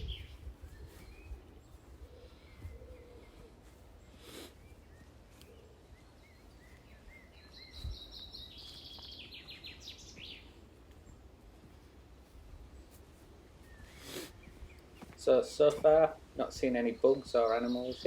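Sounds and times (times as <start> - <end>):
faint bird chirps: 0.0 - 11.3, 13.6 - 15.2
songbird trill: 0.0 - 18.0.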